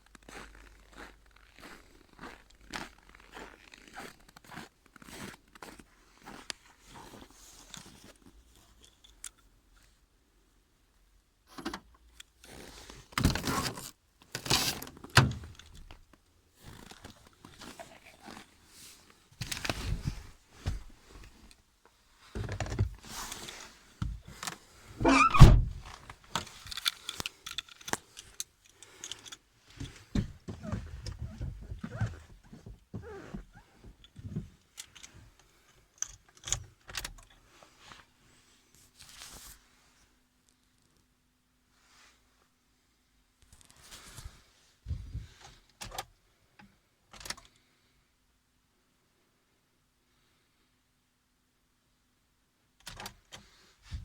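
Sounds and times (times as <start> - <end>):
heavy thud: 25.0 - 25.8.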